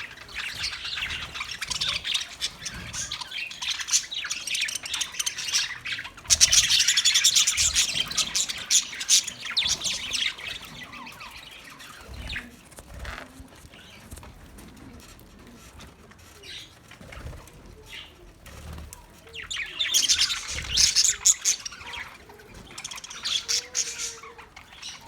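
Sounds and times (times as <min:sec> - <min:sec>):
budgerigar chirping and warbling: 0:19.6 - 0:25.0.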